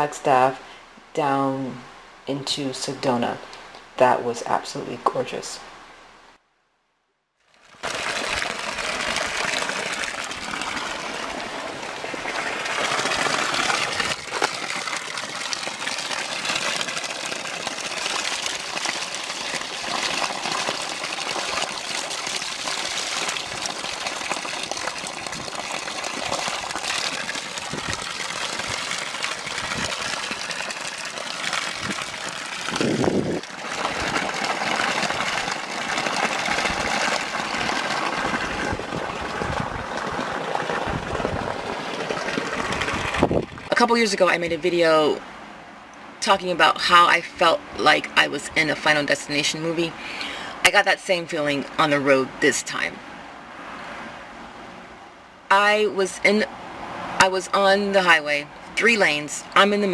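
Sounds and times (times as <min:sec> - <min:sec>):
car road and wind noise: 0:42.6 - 0:43.7.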